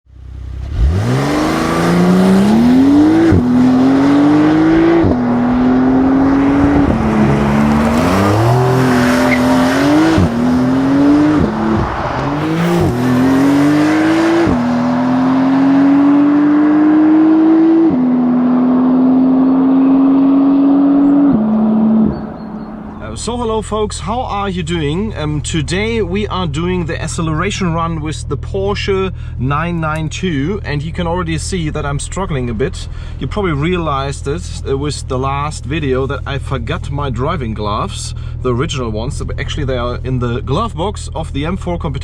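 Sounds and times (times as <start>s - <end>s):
car engine accelerating through gears: 0.4s - 23.1s.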